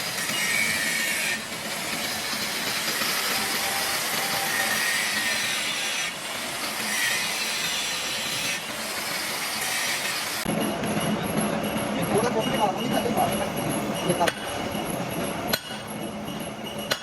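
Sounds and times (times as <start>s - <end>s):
metal being cut rasping: 0.0s - 10.5s.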